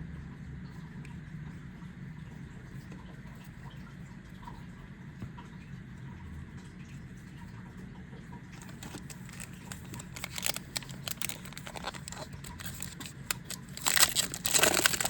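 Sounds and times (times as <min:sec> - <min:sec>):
cards clicking and rustling: 0:08.6 - 0:15.0
foil wrapper crinkling and tearing: 0:08.6 - 0:15.0.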